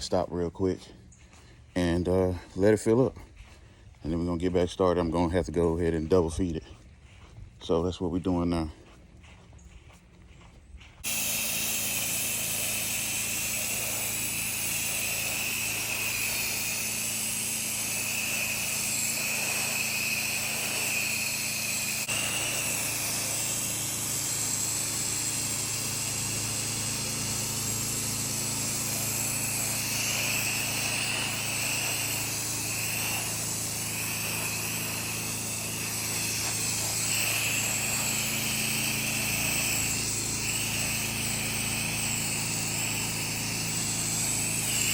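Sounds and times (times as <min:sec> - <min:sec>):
pressure washer engine humming: 0:00.0 - 0:44.9
water spray hiss: 0:11.0 - 0:44.9.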